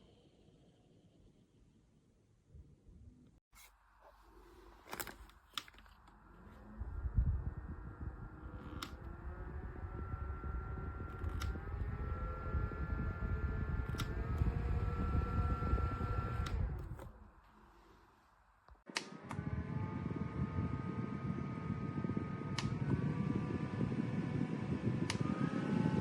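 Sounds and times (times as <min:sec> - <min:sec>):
desk fan running: 0:04.9 - 0:17.7, 0:18.9 - 0:26.0
fan button clicks: 0:08.4 - 0:09.1, 0:11.1 - 0:11.7, 0:13.8 - 0:14.6.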